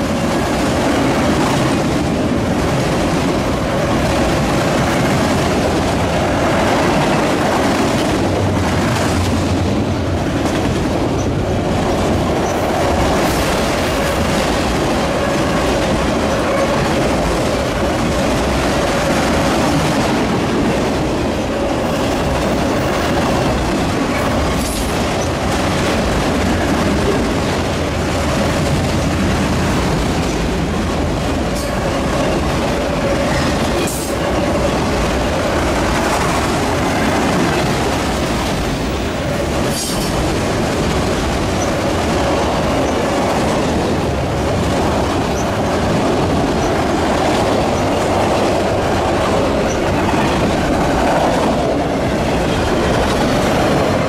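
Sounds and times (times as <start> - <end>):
freight train wheels rumbling: 0.0 - 54.0
wheels clacking over rail joints: 0.0 - 54.0.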